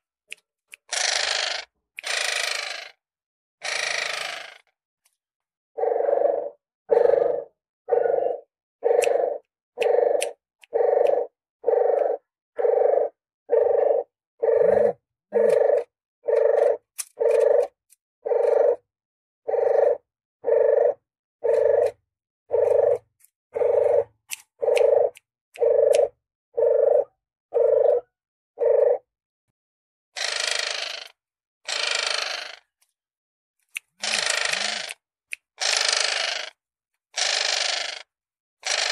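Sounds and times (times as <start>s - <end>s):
dove cooing: 5.8s - 18.8s, 19.5s - 29.1s.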